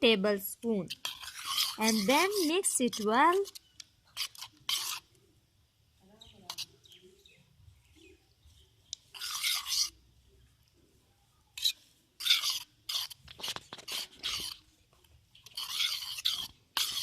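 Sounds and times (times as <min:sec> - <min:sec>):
slime squelching while stirred: 0:00.8 - 0:05.1, 0:08.6 - 0:10.0, 0:11.4 - 0:17.0.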